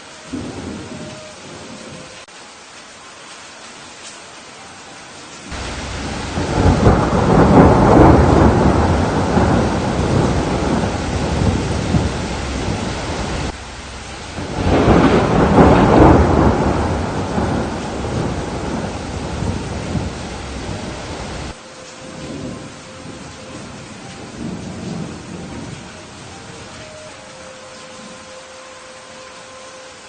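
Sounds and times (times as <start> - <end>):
steady rain: 0.0 - 30.0
thunder rolling: 0.3 - 2.2, 5.5 - 27.0.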